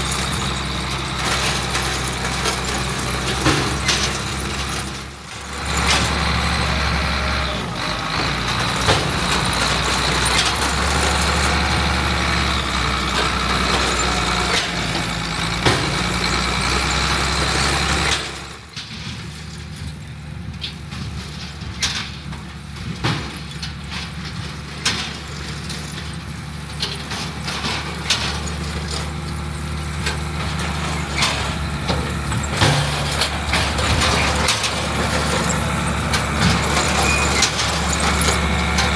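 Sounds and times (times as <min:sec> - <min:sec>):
heavy diesel machinery running: 0:00.0 - 0:38.9
sharp clicks and knocks: 0:30.0 - 0:38.9.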